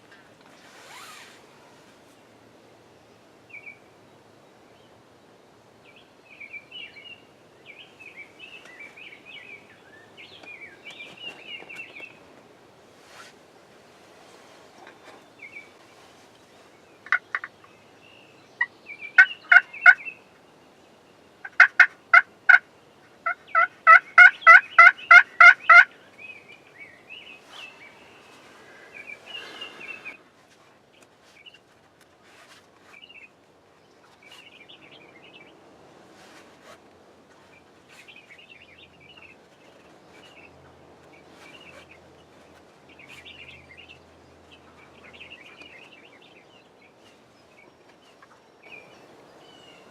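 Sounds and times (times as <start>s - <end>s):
turkey yelping: 19.2s - 20.0s, 23.2s - 25.9s.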